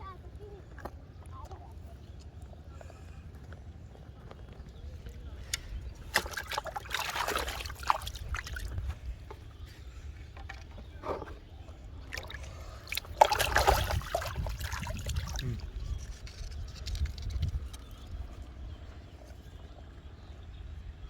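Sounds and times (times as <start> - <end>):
water splashing and sloshing: 5.8 - 9.7, 10.3 - 17.5.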